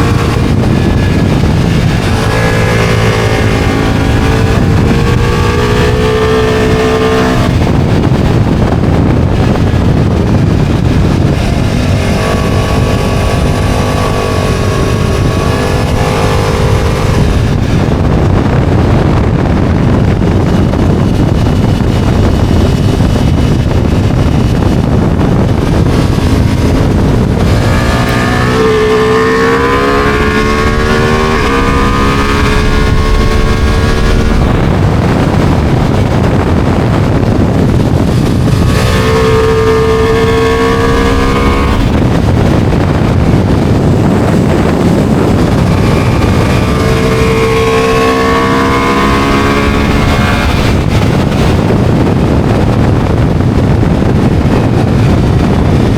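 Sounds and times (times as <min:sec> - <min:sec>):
motorcycle engine accelerating: 0:00.0 - 0:55.9
wind rush on microphone: 0:00.0 - 0:55.9.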